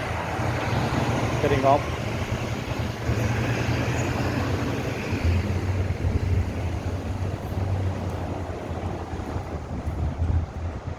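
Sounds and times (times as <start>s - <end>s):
low engine rumble: 0.0s - 10.9s
wind buffeting microphone: 0.0s - 10.9s.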